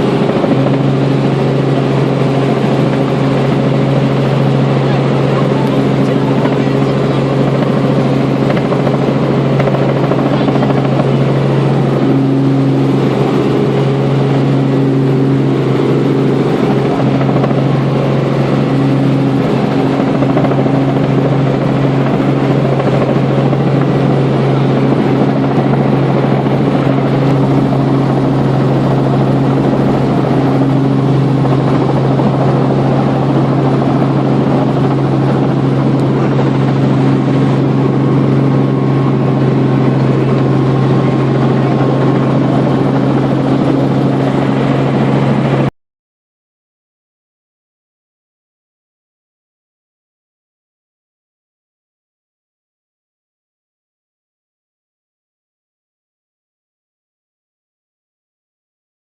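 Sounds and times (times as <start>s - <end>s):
helicopter engine and rotors: 0.0s - 45.7s.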